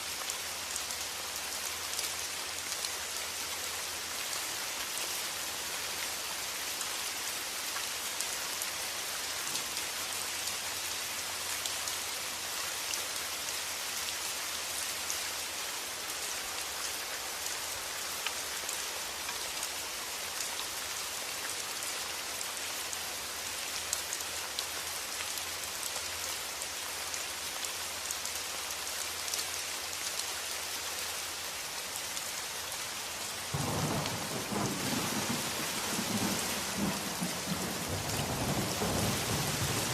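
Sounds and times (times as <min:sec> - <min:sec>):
steady rain falling: 0:00.0 - 0:39.9
low rumble of thunder: 0:33.5 - 0:39.9.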